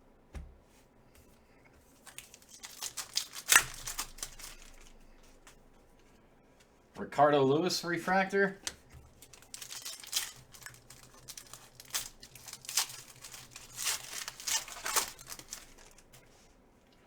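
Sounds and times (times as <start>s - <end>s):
foil wrappers crinkling: 1.9s - 6.0s, 8.2s - 16.6s.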